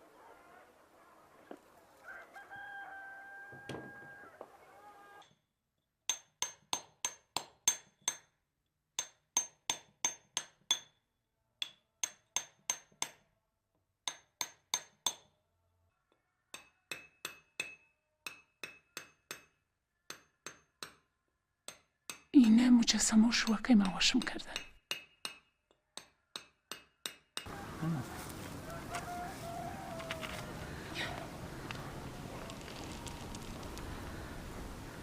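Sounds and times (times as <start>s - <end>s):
hammer tapping on a chisel: 6.1s - 8.3s, 9.0s - 11.0s, 11.6s - 13.2s, 24.2s - 27.5s.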